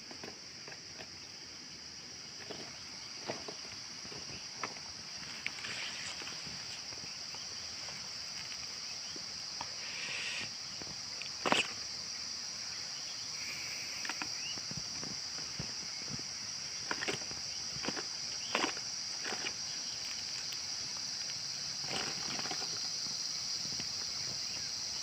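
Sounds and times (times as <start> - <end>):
high-pitched insect chorus: 0.0 - 25.0
small clicks and rustles: 16.8 - 24.1.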